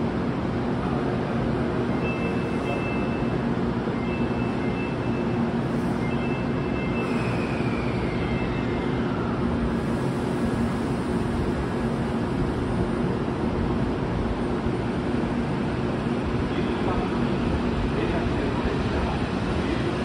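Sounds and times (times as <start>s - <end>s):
standing train whooshing hum: 0.0s - 20.0s
faint short high tones: 1.9s - 3.3s.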